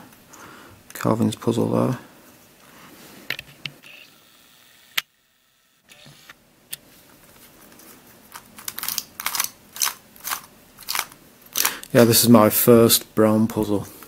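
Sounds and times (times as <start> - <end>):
plastic puzzle cube clicking: 8.6 - 11.9.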